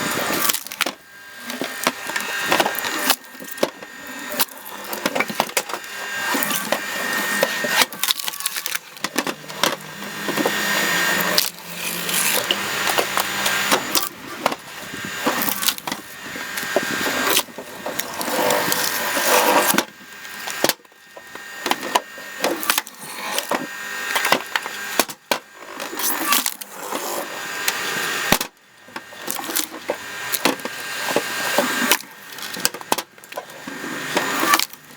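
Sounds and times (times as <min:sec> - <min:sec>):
wood cracking and splintering: 0:00.0 - 0:26.7, 0:27.6 - 0:34.9
log splitter driving into logs: 0:00.0 - 0:34.9.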